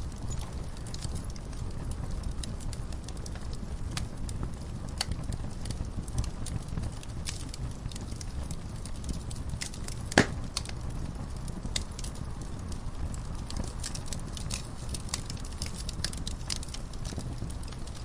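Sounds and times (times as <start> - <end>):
low steady rumble: 0.0 - 18.0
wood fire crackling: 0.0 - 18.0.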